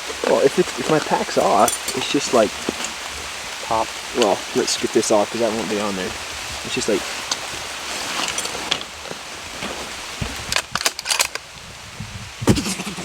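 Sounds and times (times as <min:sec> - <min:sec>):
rain hissing: 0:00.0 - 0:13.0
sharp clicks of gear handling: 0:10.5 - 0:11.4.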